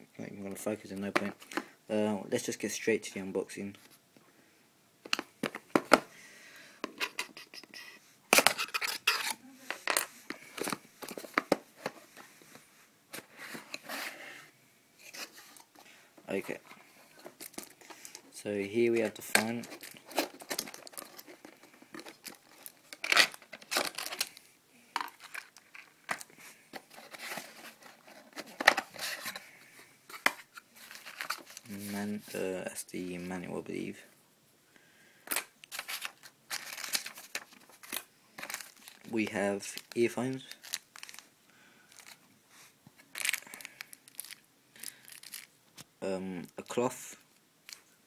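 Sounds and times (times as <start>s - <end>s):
packaging rustling and crinkling: 8.3s - 14.2s, 16.4s - 32.4s, 35.3s - 41.3s, 41.9s - 42.2s, 43.0s - 45.6s
cardboard and plastic packaging tearing: 19.1s - 24.4s, 35.7s - 39.9s, 43.1s - 45.5s.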